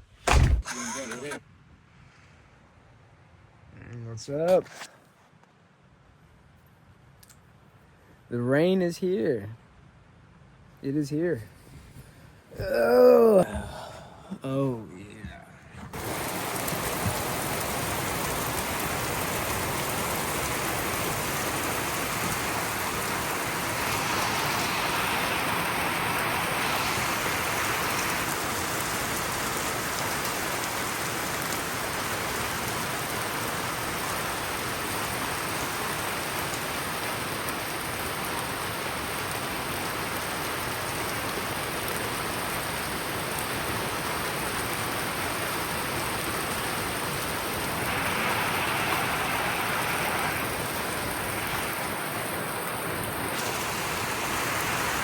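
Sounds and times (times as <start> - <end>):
heavy rain falling: 12.6 - 55.0.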